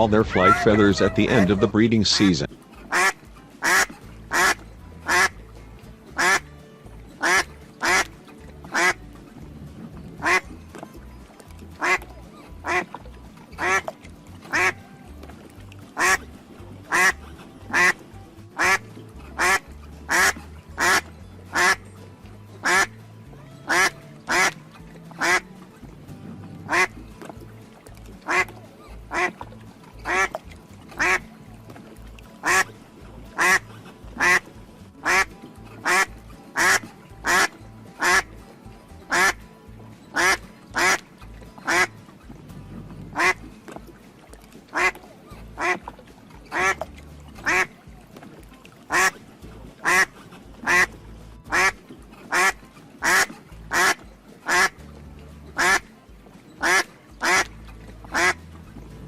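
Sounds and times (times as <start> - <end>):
duck quacking: 0.0 - 5.4, 6.2 - 6.4, 7.2 - 8.1, 8.7 - 9.0, 10.2 - 10.5, 11.8 - 12.0, 12.6 - 13.0, 13.6 - 14.8, 16.0 - 16.2, 16.9 - 18.0, 18.6 - 21.8, 22.6 - 22.9, 23.6 - 24.6, 25.2 - 25.4, 26.7 - 26.9, 28.2 - 28.5, 29.1 - 29.4, 30.1 - 30.4, 31.0 - 31.3, 32.4 - 32.7, 33.4 - 38.3, 39.1 - 39.4, 40.1 - 41.0, 41.6 - 41.9, 43.1 - 43.4, 44.7 - 45.0, 45.6 - 45.8, 46.5 - 47.8, 48.9 - 49.2, 49.8 - 50.9, 51.5 - 54.8, 55.6 - 55.9, 56.6 - 57.5, 58.1 - 58.4
faint background music: 0.0 - 59.0.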